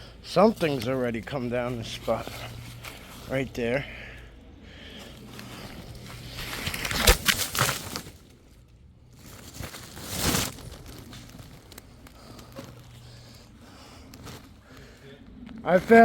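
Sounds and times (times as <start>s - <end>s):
dry leaves crunching underfoot: 0.5s - 3.6s, 4.9s - 15.0s
twig snapping: 5.3s - 8.3s, 9.2s - 12.9s.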